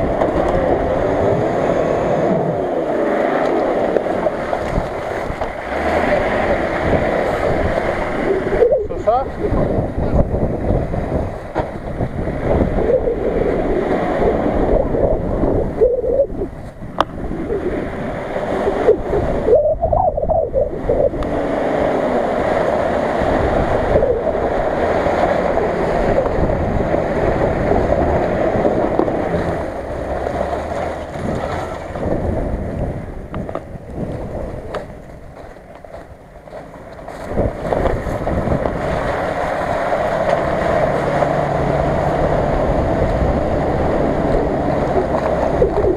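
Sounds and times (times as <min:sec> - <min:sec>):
engines running: 0:00.0 - 0:45.9
water splashing around wheels: 0:00.0 - 0:45.9
wind buffeting the microphone: 0:00.0 - 0:45.9.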